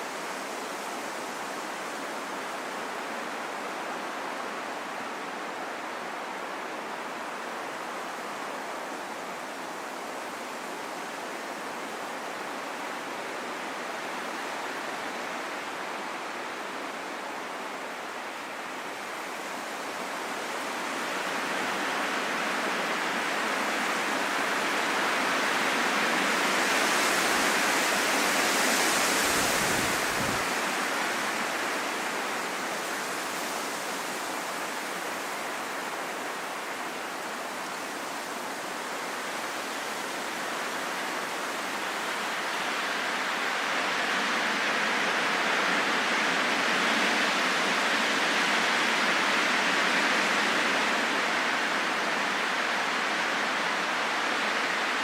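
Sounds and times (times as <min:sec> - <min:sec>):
wind blowing: 0:28.6 - 0:32.6.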